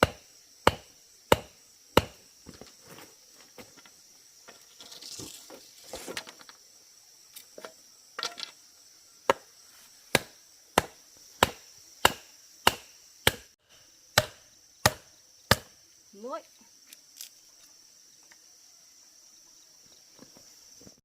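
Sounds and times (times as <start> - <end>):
blade chopping: 10.1 - 13.5, 14.2 - 15.7.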